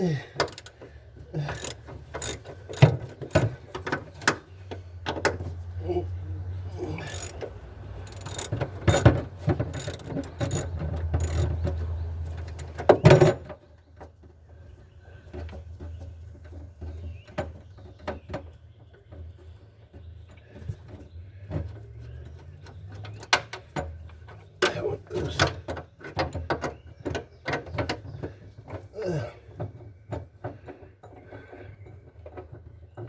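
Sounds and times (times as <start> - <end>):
hand ratchet clicking: 0.4 - 0.7, 1.4 - 3.5, 7.0 - 7.4, 8.1 - 11.6, 12.5 - 13.4
metal clatter: 0.4 - 0.7, 1.5 - 3.6, 7.1 - 7.4, 8.1 - 11.6, 12.4 - 13.5
light clicks and knocks: 1.5 - 4.0, 8.1 - 11.8.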